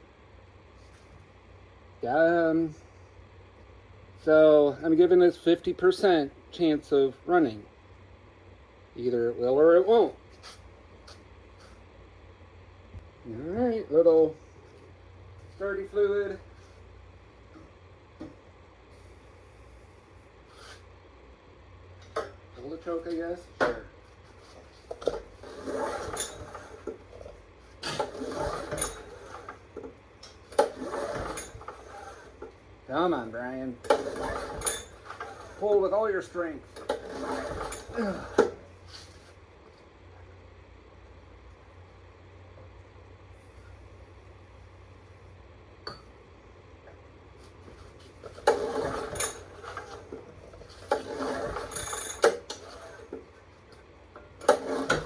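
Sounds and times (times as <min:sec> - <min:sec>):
generator recoil starter pulled: 0:24.9 - 0:27.0, 0:27.8 - 0:32.4, 0:33.8 - 0:35.8, 0:36.7 - 0:38.6, 0:48.2 - 0:53.1, 0:54.4 - 0:55.0
engine cranking: 0:30.5 - 0:32.3, 0:36.8 - 0:38.6.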